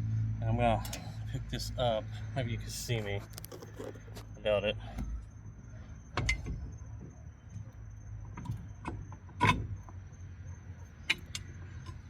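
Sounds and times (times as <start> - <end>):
steady low hum: 0.0 - 12.0
metal clanks and knocks: 6.1 - 10.0, 11.0 - 12.0.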